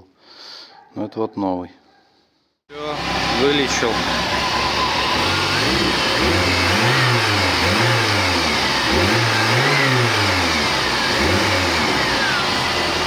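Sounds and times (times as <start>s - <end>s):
car engine revving: 2.7s - 13.0s.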